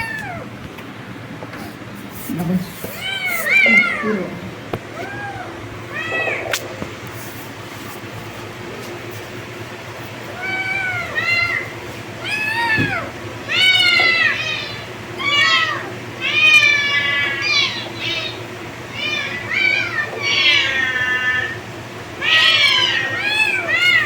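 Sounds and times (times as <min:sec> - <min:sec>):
kittens meowing: 0:00.0 - 0:00.6, 0:02.9 - 0:06.7, 0:10.3 - 0:21.6, 0:22.2 - 0:24.0.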